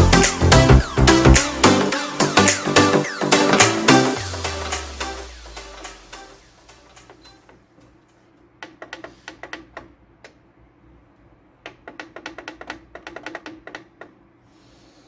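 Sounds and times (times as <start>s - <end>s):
plastic keypad buttons clicking: 11.6s - 14.2s.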